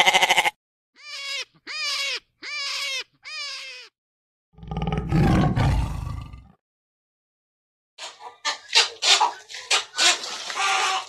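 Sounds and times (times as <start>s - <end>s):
high-pitched squealing calls: 0.0s - 3.9s
tiger roaring: 4.6s - 6.5s.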